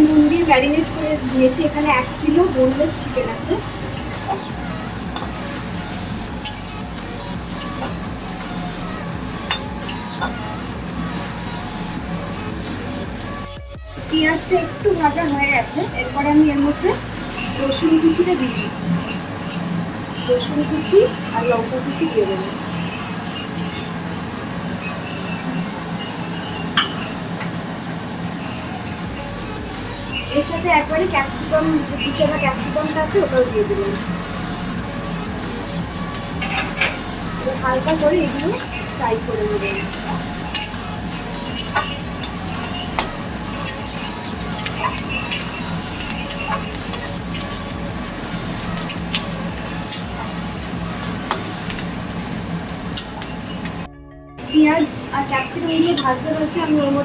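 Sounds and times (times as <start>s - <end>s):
vegetables sizzling in hot oil: 0.0s - 53.9s
spatula clinking against pan: 3.8s - 5.8s, 6.4s - 10.6s, 36.1s - 52.0s, 52.9s - 53.8s.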